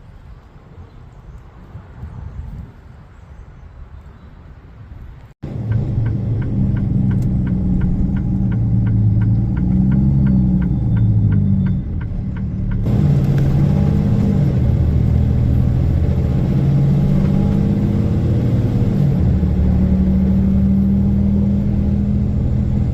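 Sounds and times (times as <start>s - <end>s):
truck engine running: 5.4s - 22.9s.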